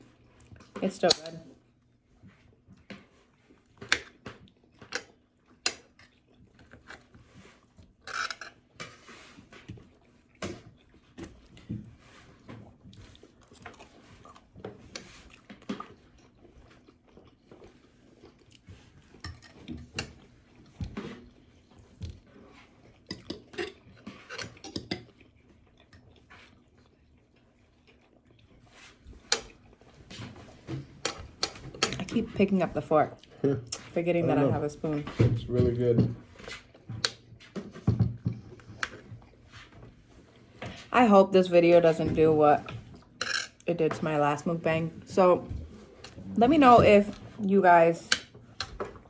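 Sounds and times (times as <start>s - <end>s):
chewing: 0.0s - 32.0s
cutlery clinking on dishes: 19.2s - 20.2s, 43.2s - 43.6s.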